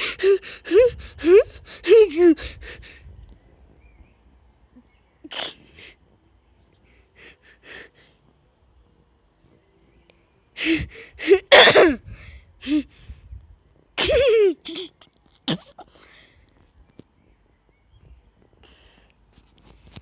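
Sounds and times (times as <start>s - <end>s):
sneeze-like bursts: 5.3s - 5.7s, 11.3s - 12.0s.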